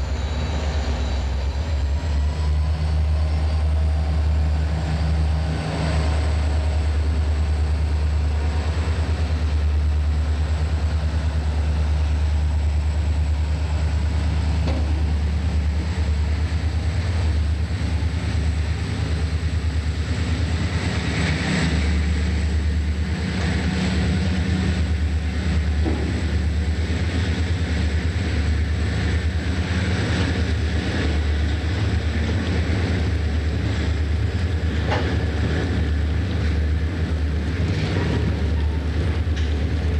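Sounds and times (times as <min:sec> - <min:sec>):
train engine rumble: 0:00.0 - 0:39.9
train rolling noise: 0:00.0 - 0:39.9.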